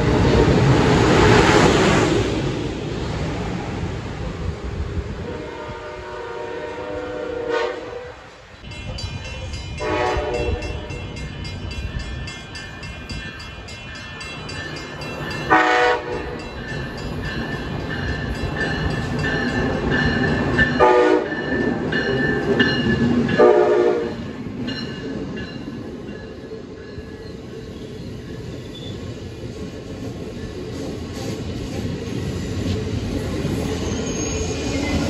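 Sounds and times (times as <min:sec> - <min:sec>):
train running noise: 0:00.0 - 0:35.0
train horn blasts: 0:05.2 - 0:08.4, 0:09.8 - 0:11.2, 0:15.5 - 0:16.4, 0:20.8 - 0:21.4, 0:23.3 - 0:24.3.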